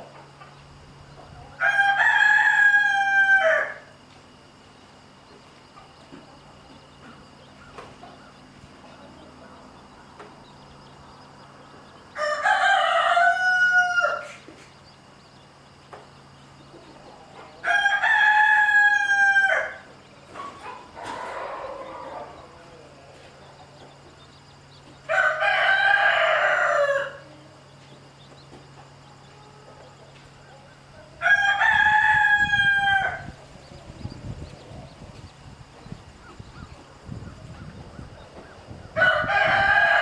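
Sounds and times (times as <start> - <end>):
faint low hum: 0.0 - 40.0
rooster crowing: 1.4 - 4.0, 12.0 - 14.4, 17.3 - 19.9, 20.8 - 22.9, 25.0 - 27.5, 31.0 - 33.4, 38.6 - 40.0.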